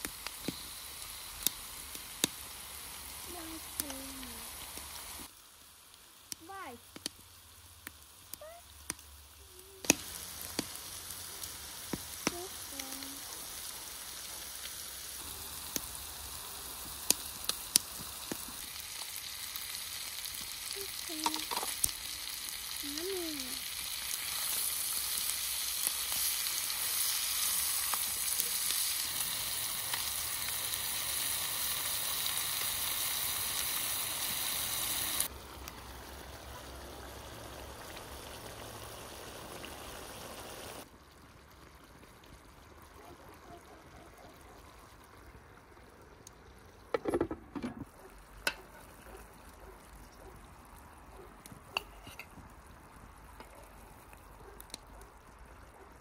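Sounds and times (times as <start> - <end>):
food sizzling in a pan: 0.0 - 40.9.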